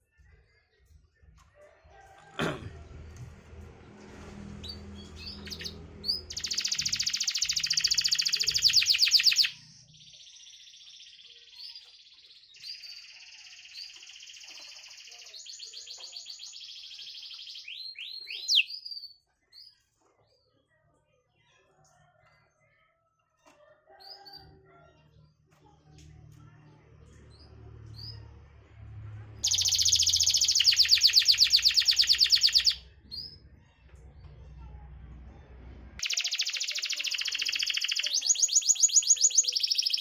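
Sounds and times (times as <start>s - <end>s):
canary singing trills: 4.7s - 11.8s, 12.6s - 19.0s, 29.4s - 33.4s, 36.0s - 40.0s.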